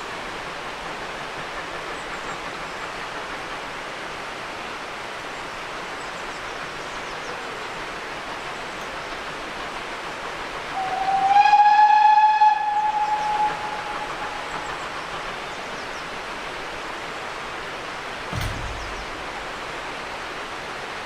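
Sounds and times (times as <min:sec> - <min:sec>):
steady steam hiss: 0:00.0 - 0:21.0
steam locomotive whistle: 0:10.7 - 0:14.7
short low thump: 0:18.3 - 0:19.6.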